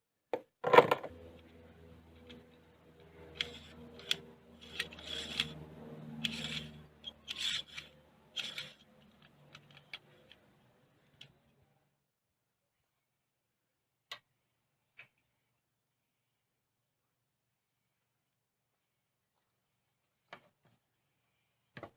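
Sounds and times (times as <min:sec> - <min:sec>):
rough scraping strokes: 0:03.1 - 0:09.3.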